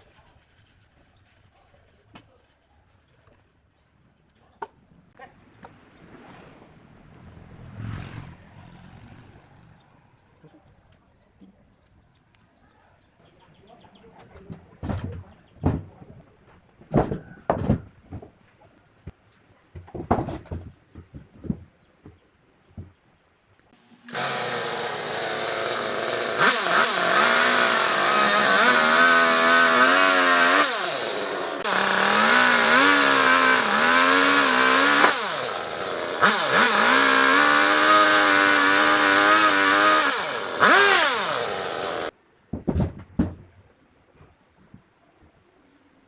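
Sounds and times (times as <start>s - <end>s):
chainsaw cutting wood: 24.0s - 42.1s.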